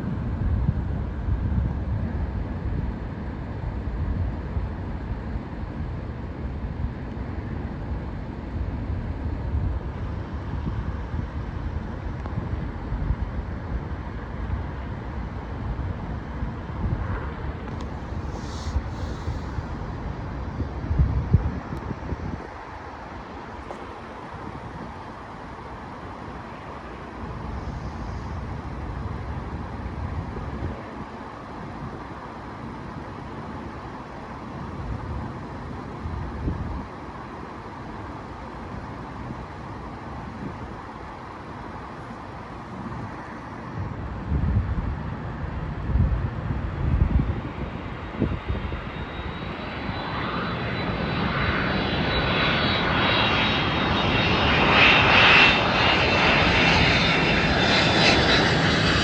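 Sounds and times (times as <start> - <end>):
distant jet engine rumble: 0.0 - 59.0
wind buffeting microphone: 8.0 - 25.6, 27.1 - 32.2, 34.7 - 37.0, 42.6 - 59.0.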